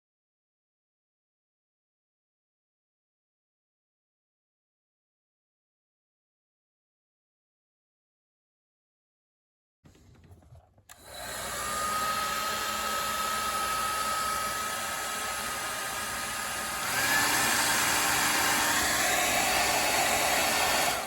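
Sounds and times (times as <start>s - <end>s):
hair dryer blowing air: 10.9s - 21.0s.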